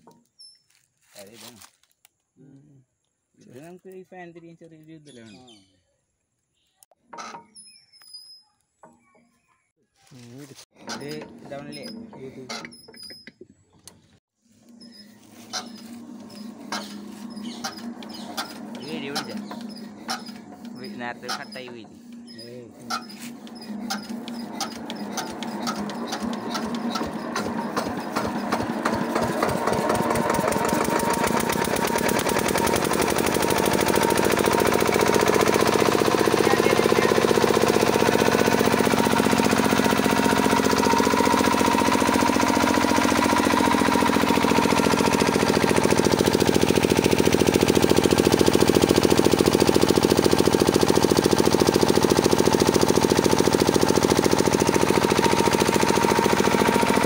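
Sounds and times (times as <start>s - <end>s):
diesel generator engine knocking: 15.6s - 22.4s, 23.4s - 57.0s.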